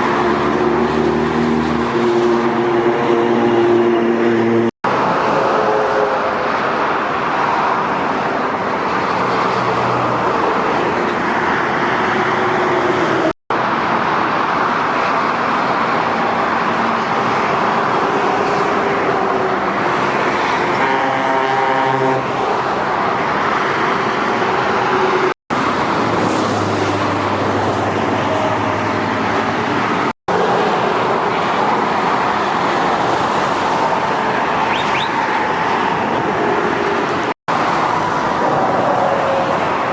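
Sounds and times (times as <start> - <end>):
heavy trucks driving past: 16.0 - 39.9.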